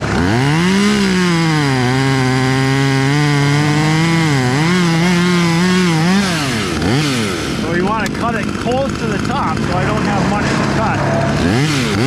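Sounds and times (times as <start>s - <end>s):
chainsaw cutting wood: 0.0s - 12.0s.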